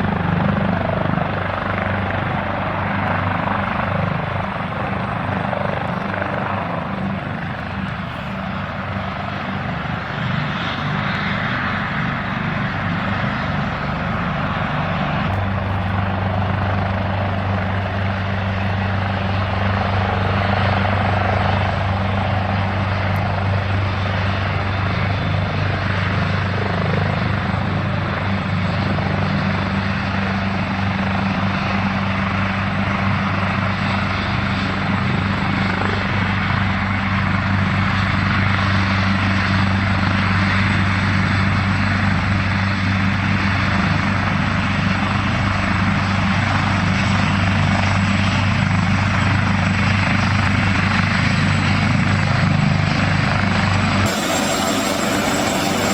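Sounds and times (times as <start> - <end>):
helicopter turbine and rotor: 0.0 - 55.9.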